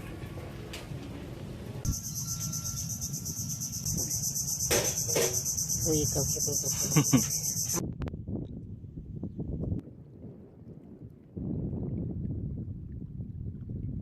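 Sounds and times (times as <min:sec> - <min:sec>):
brief calls: 0:01.9 - 0:07.8
insects chirring: 0:01.9 - 0:07.8.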